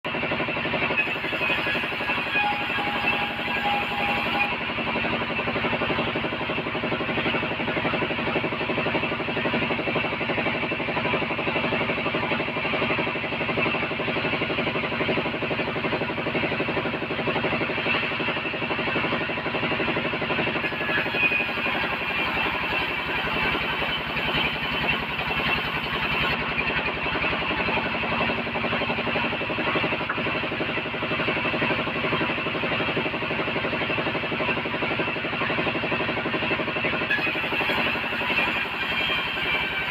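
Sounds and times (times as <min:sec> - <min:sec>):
bandsaw sawing timber: 0:01.0 - 0:04.6, 0:20.6 - 0:26.4, 0:37.1 - 0:39.9.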